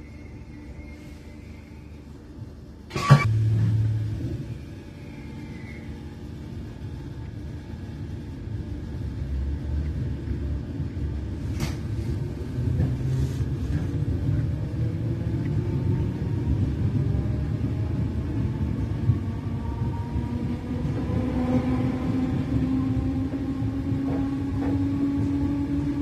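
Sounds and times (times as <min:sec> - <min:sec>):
faint whine rising in pitch: 0:00.0 - 0:10.1
train wheels rumbling: 0:00.0 - 0:26.0.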